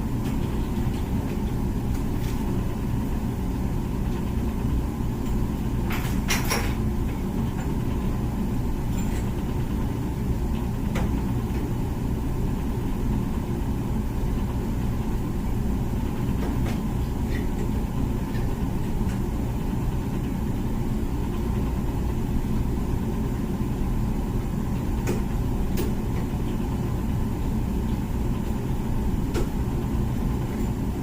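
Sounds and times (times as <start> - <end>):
dishwasher rumbling: 5.4 - 8.2.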